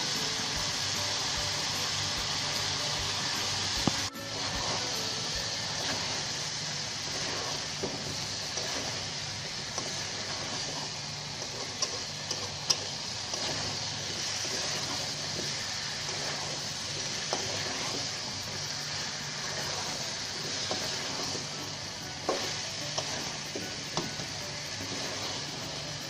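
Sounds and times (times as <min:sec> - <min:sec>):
vegetables sizzling in a pan: 0:00.0 - 0:26.0
spatula scraping and knocking pan: 0:07.1 - 0:25.8.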